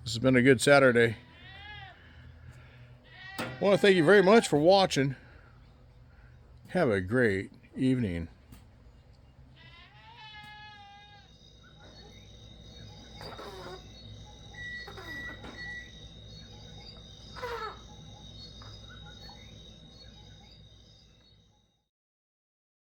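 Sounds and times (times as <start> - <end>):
animal bleat: 1.1 - 4.8, 9.6 - 12.2, 13.0 - 15.9, 16.7 - 18.0
downward-sliding animal calls: 3.4 - 4.7, 13.0 - 15.9, 16.7 - 19.5
crickets trilling: 3.4 - 8.3, 9.3 - 21.9.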